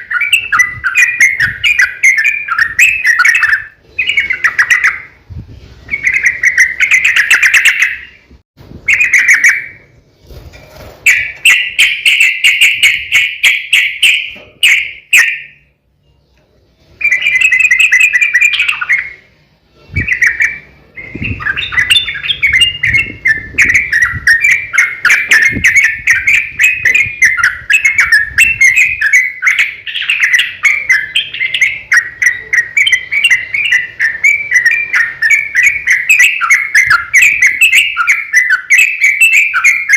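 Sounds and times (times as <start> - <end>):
bird singing bubbling chatter: 0.0 - 5.2, 16.9 - 39.9.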